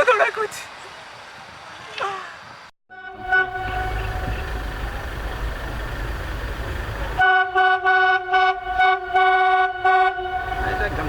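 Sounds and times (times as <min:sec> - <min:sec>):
train horn blasts: 0:02.9 - 0:05.0, 0:07.2 - 0:11.0
train rumbling past: 0:03.0 - 0:11.0.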